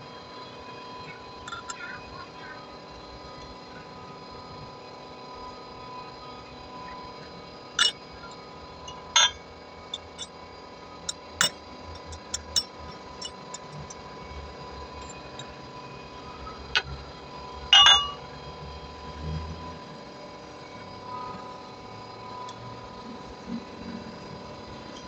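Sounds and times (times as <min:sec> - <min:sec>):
metal tools clicking and clanking: 0:01.5 - 0:01.8, 0:07.8 - 0:08.0, 0:08.9 - 0:10.4, 0:11.1 - 0:14.1, 0:17.8 - 0:18.2
faint steady hum: 0:05.4 - 0:25.0.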